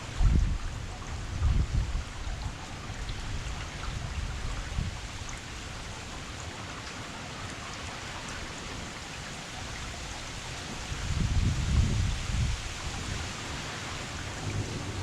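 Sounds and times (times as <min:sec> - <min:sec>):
steady rain falling: 0:00.0 - 0:15.0
low rumbling: 0:14.1 - 0:15.0.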